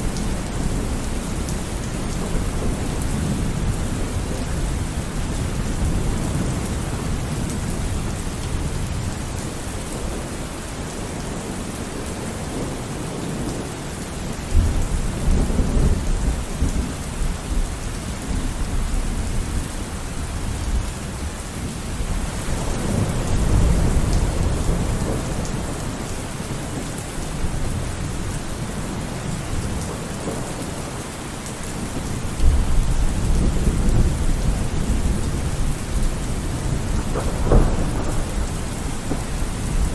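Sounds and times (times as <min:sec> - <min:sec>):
steady rain: 0:00.0 - 0:39.9
thunder rumbling: 0:22.0 - 0:31.0, 0:31.7 - 0:39.9.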